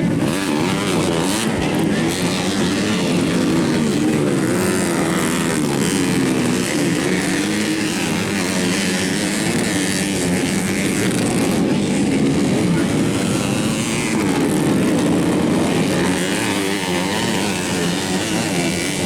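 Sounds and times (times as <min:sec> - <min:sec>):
racing motorcycles revving: 0:00.0 - 0:19.0.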